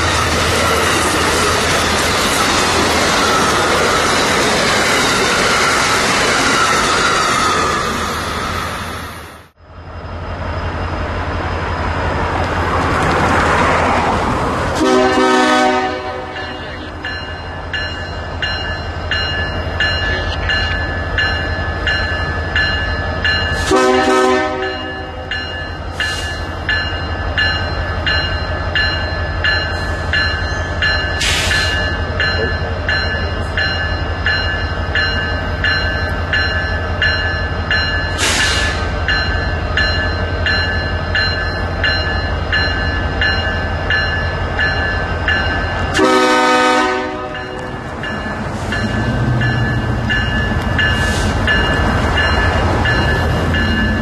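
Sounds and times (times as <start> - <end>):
train rumbling past: 0.0 - 54.0
train horn blasts: 14.8 - 16.5, 23.6 - 25.3, 45.9 - 47.6.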